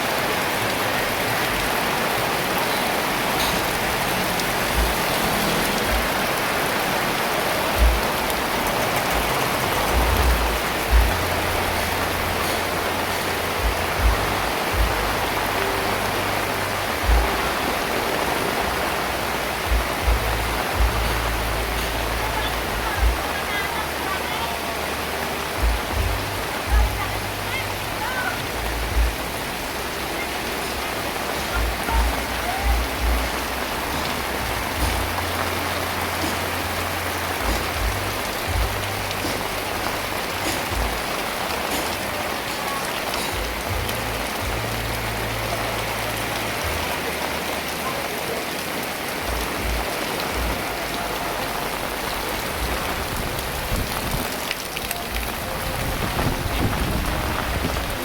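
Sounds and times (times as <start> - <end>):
heavy rain falling: 0.0 - 58.0
wind buffeting: 55.1 - 58.0.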